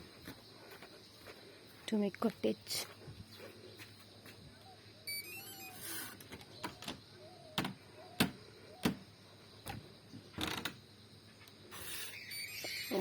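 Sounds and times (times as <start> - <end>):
footsteps on hard path: 0.0 - 2.0, 2.8 - 4.5
faint bird chirps: 3.3 - 9.7, 11.7 - 13.0.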